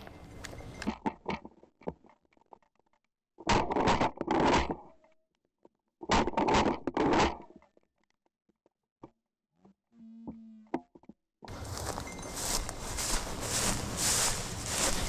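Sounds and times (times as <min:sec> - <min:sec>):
rustling through dry vegetation: 0:11.5 - 0:15.0.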